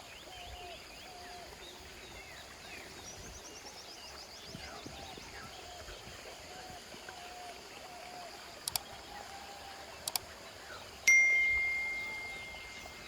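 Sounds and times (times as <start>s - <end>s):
double clicks: 8.6s - 8.9s, 10.0s - 10.2s
bell-like ding: 11.1s - 13.0s.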